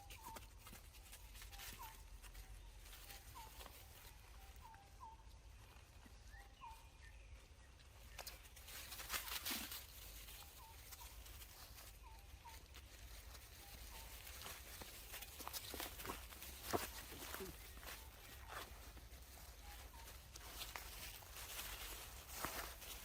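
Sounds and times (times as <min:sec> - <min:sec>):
animal chirps: 0:01.5 - 0:07.1, 0:10.3 - 0:12.7, 0:13.6 - 0:14.6.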